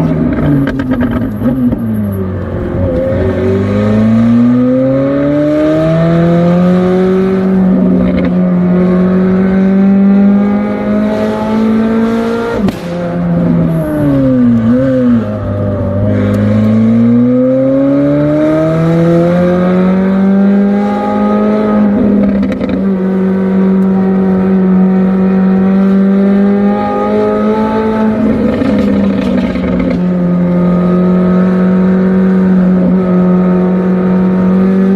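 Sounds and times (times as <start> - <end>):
sharp exhaust crack: 12.6 - 14.7.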